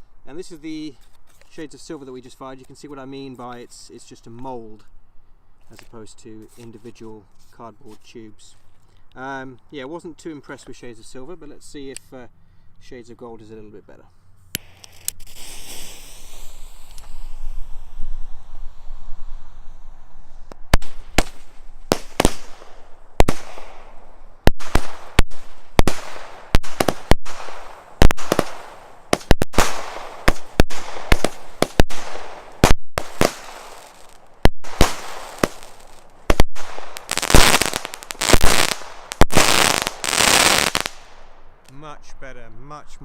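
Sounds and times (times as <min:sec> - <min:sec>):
firework cake bangs and crackle: 0:14.6 - 0:19.6, 0:20.5 - 0:41.2.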